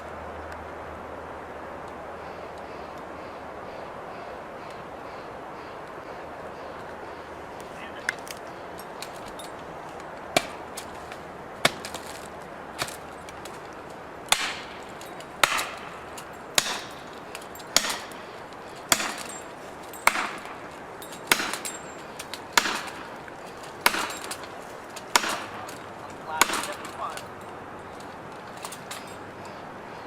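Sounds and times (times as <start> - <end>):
sharp chopping blows: 8.0 - 27.4
short rattling: 8.1 - 29.2.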